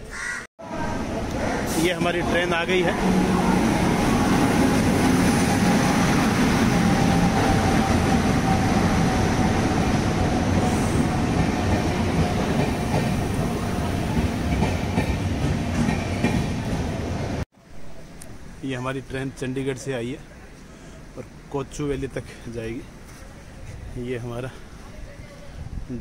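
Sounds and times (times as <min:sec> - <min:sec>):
train coaches rumbling past: 0:00.6 - 0:17.4.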